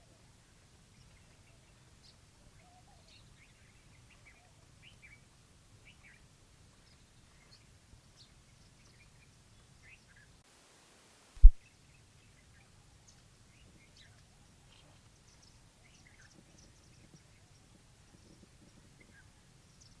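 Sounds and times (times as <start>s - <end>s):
faint bird chirps: 0.9s - 10.4s.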